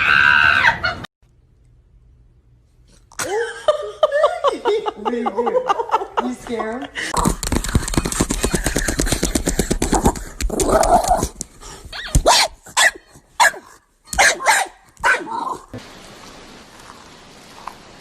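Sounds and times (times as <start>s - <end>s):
dog barking: 12.0s - 15.6s.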